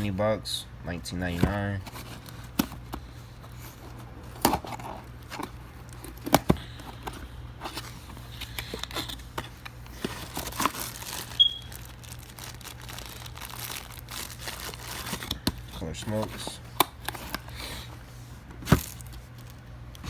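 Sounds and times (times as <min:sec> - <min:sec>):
packaging crinkling and rustling: 0:01.2 - 0:20.0
high squeak: 0:11.3 - 0:11.7.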